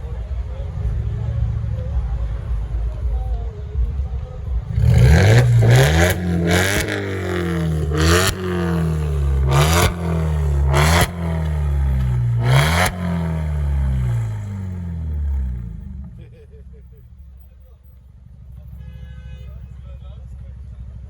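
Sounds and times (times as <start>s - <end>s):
car engine revving: 4.5s - 17.3s
sharp exhaust crack: 4.7s - 16.2s.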